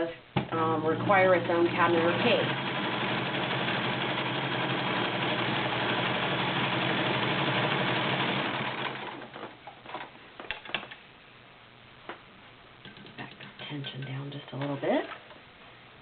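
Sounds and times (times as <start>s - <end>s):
sewing machine stitching: 1.3s - 9.4s.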